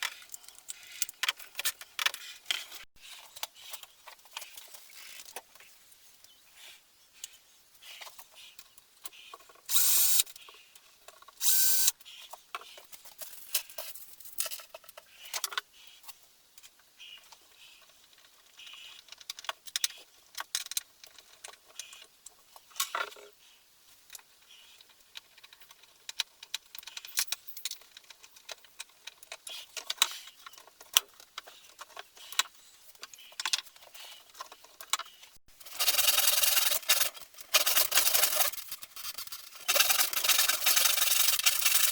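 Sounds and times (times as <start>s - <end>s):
power tool bursts: 9.7s - 10.2s, 11.4s - 11.9s
clicks and knocks of parts: 18.1s - 23.3s.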